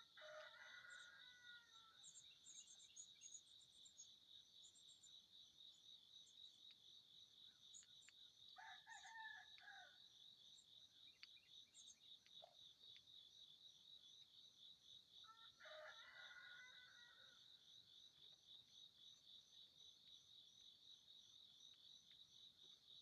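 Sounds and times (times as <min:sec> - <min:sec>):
faint rooster crowing: 0:00.0 - 0:02.2, 0:08.6 - 0:10.0, 0:15.2 - 0:17.5
crickets chirping: 0:00.0 - 0:23.0.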